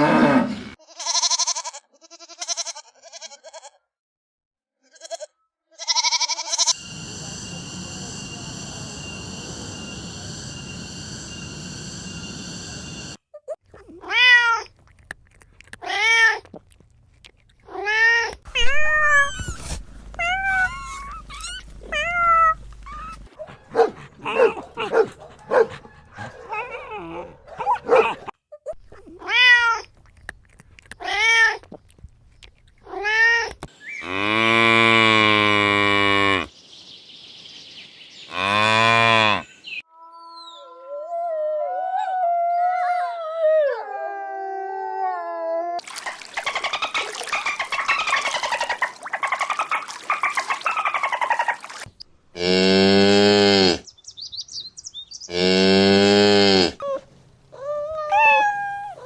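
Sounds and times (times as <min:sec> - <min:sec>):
long steady animal calls: 0:06.5 - 0:13.2, 0:45.8 - 0:59.0
wavering howl-like call: 0:06.7 - 0:13.2, 0:57.6 - 0:59.0
cat meowing: 0:20.2 - 0:23.2, 0:57.6 - 0:59.0.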